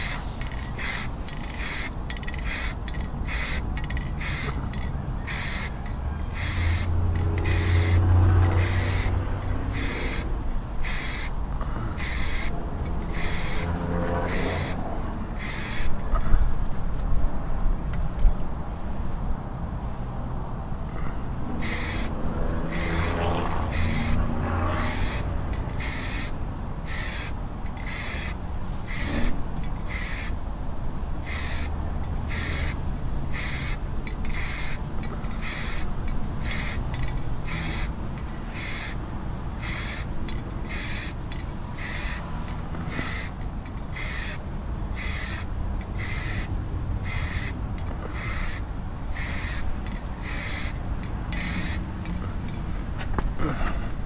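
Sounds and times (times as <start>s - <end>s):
paint spraying hiss: 0.0s - 11.4s, 12.0s - 14.8s, 15.4s - 16.0s, 21.6s - 24.2s, 24.8s - 30.4s, 31.2s - 31.7s, 32.3s - 37.9s, 38.5s - 39.0s, 39.6s - 40.1s, 40.7s - 44.4s, 45.0s - 51.8s.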